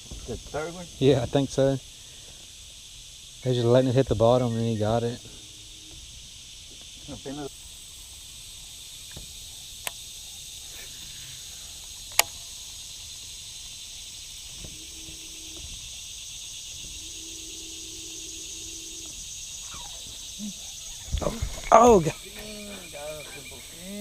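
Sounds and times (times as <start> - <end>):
faint low hum: 0.0 - 24.0
insects chorus: 0.0 - 24.0
sharp clicks: 11.8 - 12.5.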